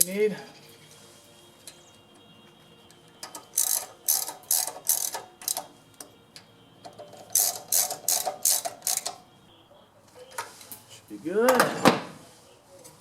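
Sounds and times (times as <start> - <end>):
socket ratchet clicking: 3.2 - 5.7, 7.3 - 9.2.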